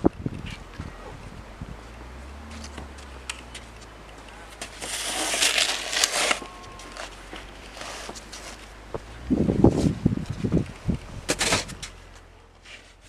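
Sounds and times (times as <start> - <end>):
low steady hum: 0.0 - 13.0
snow crunching and scraping: 1.8 - 10.6.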